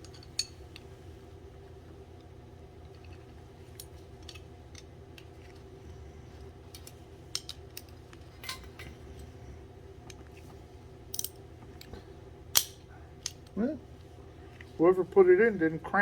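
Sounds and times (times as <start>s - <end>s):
metal tools clicking and clinking: 0.0s - 0.6s, 6.7s - 9.0s, 11.1s - 11.4s
steady low hum: 0.0s - 16.0s
metal parts rattling: 6.7s - 9.0s.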